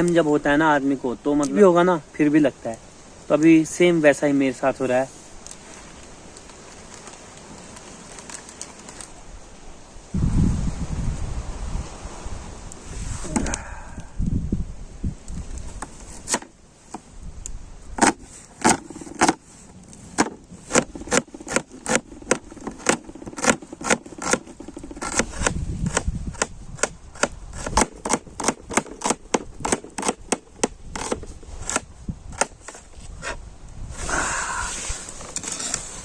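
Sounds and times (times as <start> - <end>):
sharp knocks or clicks: 18.0 - 19.4, 20.2 - 32.8.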